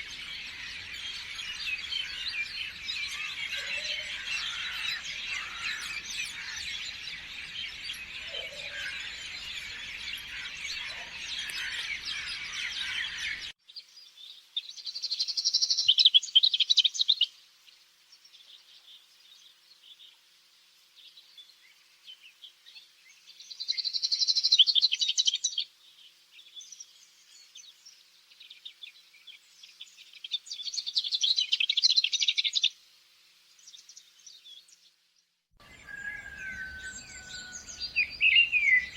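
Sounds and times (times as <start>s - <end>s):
bird trilling song: 0.0s - 13.5s, 35.6s - 38.9s
birds chorus: 0.0s - 16.0s, 35.6s - 38.9s
faint bird chirps: 35.6s - 38.9s.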